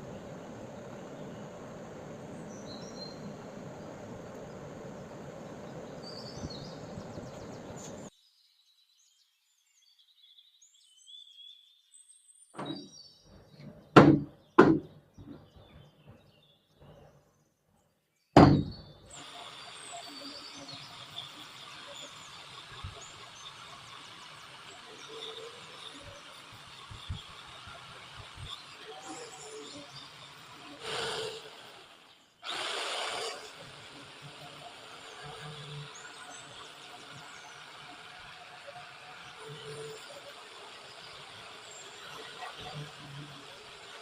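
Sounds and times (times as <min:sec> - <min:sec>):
outdoor background noise: 0:00.0 - 0:44.0
sharp knocks: 0:13.9 - 0:15.5, 0:18.4 - 0:18.8.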